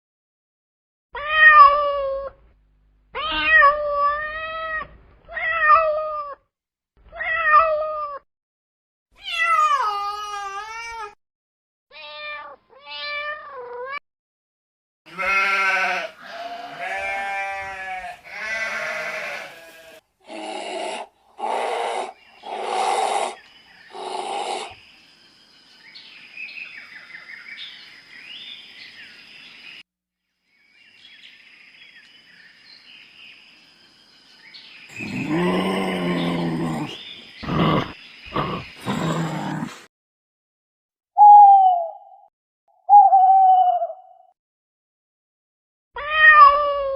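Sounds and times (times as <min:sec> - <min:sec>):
cat meowing: 0:01.2 - 0:02.4, 0:03.2 - 0:06.4, 0:07.1 - 0:08.2, 0:09.2 - 0:11.2, 0:11.9 - 0:14.0, 0:15.2 - 0:19.9, 0:46.0 - 0:46.9
rough noisy animal calls: 0:15.1 - 0:24.8, 0:34.9 - 0:39.9
animal calls: 0:15.2 - 0:24.8, 0:34.9 - 0:39.9.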